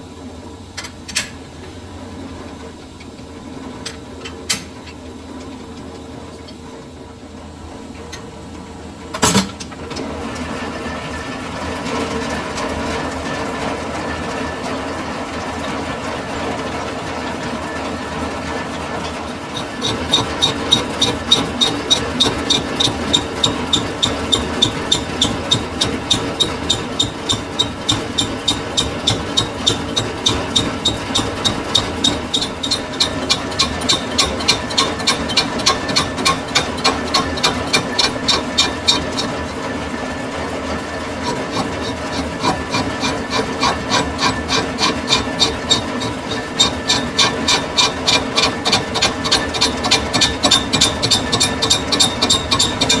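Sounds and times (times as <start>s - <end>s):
lathe humming: 18.1s - 53.0s.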